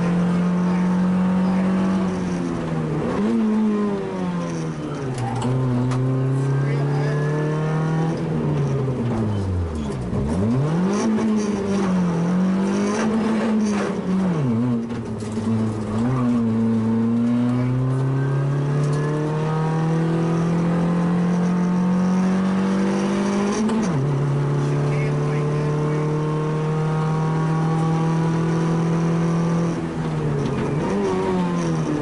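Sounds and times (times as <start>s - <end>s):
rally car engine revving: 0.0s - 32.0s.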